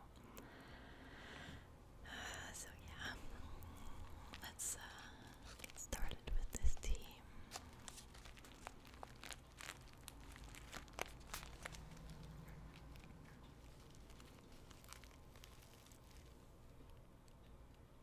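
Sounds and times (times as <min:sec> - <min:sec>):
tea bag crinkling: 0:03.2 - 0:17.4.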